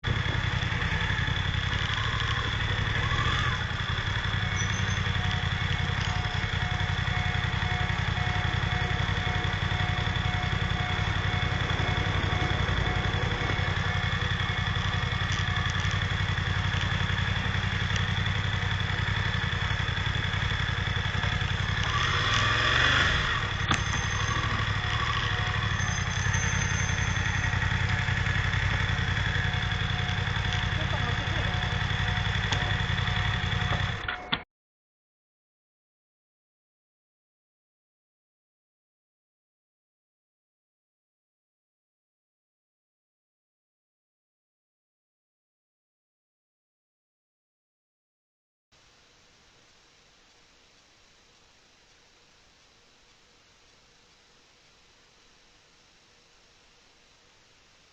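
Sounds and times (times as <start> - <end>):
car engine droning: 0.0 - 34.3.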